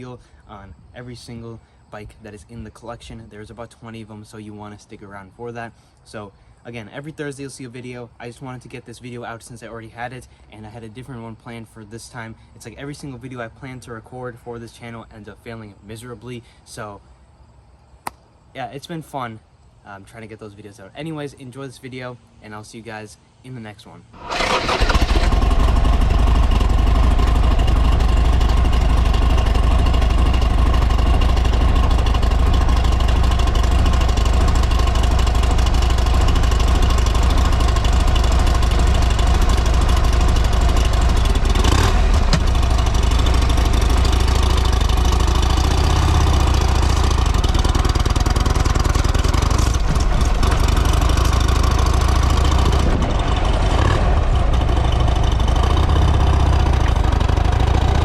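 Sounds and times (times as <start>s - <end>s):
motorcycle engine idling: 24.2s - 58.0s
exhaust pop: 24.3s - 58.0s.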